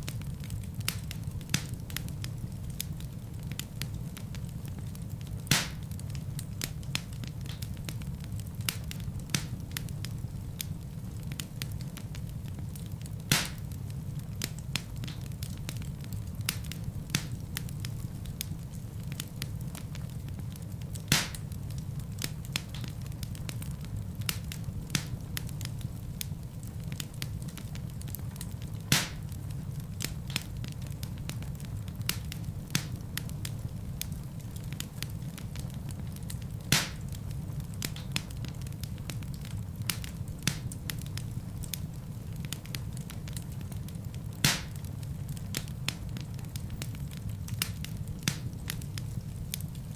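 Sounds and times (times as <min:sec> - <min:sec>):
fire crackling: 0:00.0 - 0:49.9
fire flames rumbling: 0:00.0 - 0:49.9
logs popping: 0:13.3 - 0:13.6, 0:21.1 - 0:21.5, 0:28.4 - 0:29.3, 0:36.7 - 0:37.1, 0:44.4 - 0:44.8.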